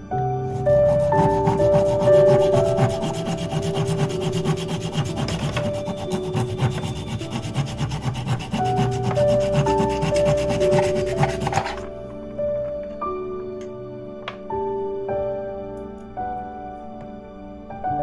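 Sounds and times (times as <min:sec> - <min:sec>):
soft piano-like music: 0:00.0 - 0:18.0
saw cutting wood: 0:00.5 - 0:12.0.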